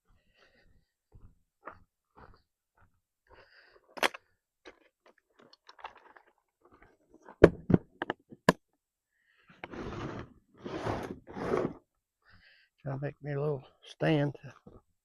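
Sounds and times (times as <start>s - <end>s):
rushing scraping noise: 9.6s - 11.8s.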